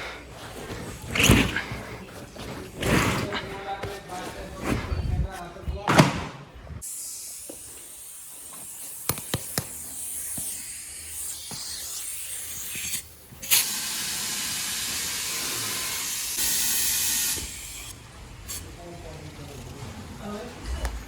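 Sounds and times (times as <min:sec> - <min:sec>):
compressed air hissing: 0:06.8 - 0:17.9.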